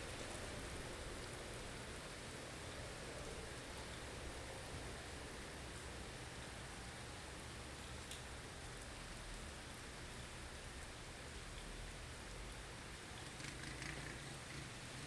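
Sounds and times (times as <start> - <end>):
faint tick: 8.0 - 8.9.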